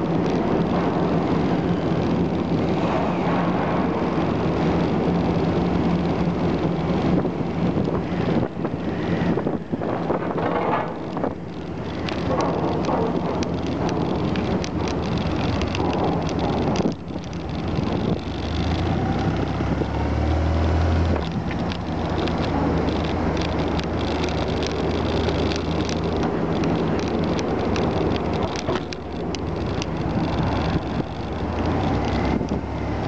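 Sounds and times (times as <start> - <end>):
clicks and clatter: 0.0 - 33.0
deep engine hum: 0.0 - 33.0
low engine drone: 0.0 - 33.0.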